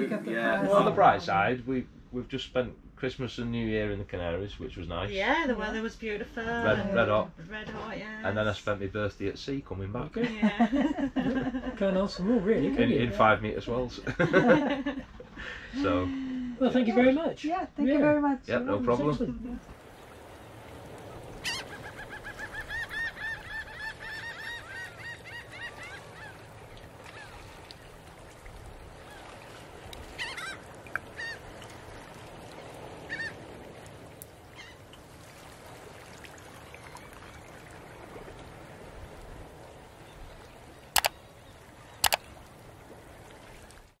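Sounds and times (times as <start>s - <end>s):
bird calls: 20.4s - 28.0s, 28.9s - 31.8s, 34.4s - 34.8s, 39.9s - 42.5s
sharp clicks: 41.0s - 41.2s, 42.0s - 42.3s.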